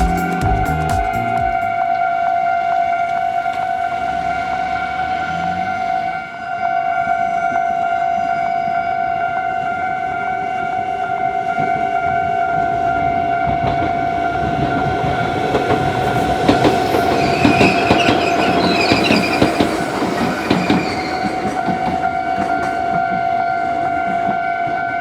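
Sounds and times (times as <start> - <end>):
level crossing warning bell: 0.6 - 25.0
wheels clacking over rail joints: 0.8 - 6.3, 10.8 - 25.0
wheels squealing: 1.2 - 9.9, 10.8 - 25.0.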